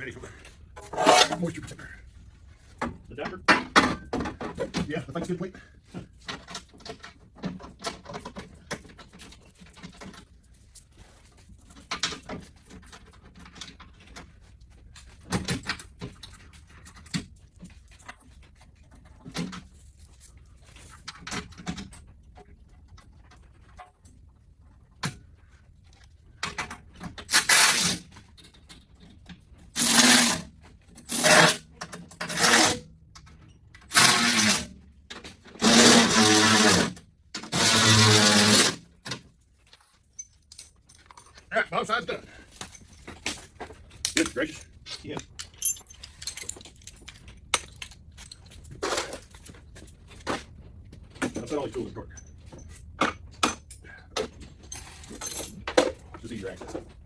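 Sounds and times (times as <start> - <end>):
power tool bursts: 29.8 - 30.4, 33.9 - 34.7, 35.6 - 38.8
parts clicking and rustling: 42.4 - 57.0.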